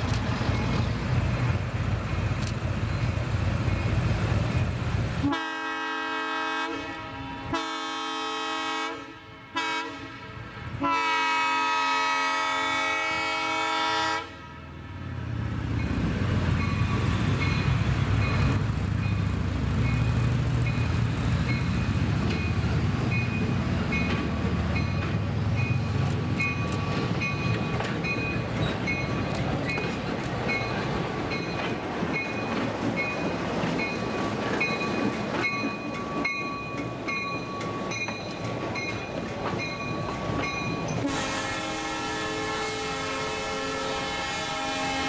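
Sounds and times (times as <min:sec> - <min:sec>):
coaches rolling on rails: 0:00.0 - 0:05.3, 0:15.0 - 0:45.0
diesel locomotive rumbling: 0:00.0 - 0:45.0
train horn chord: 0:05.2 - 0:14.7, 0:41.0 - 0:45.0.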